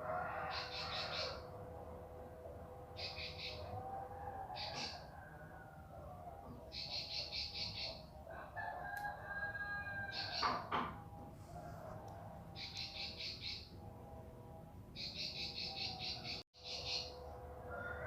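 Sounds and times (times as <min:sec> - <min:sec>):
rooster crowing: 0:00.0 - 0:01.6, 0:03.4 - 0:06.6, 0:08.2 - 0:10.8, 0:11.4 - 0:12.6, 0:17.0 - 0:18.0.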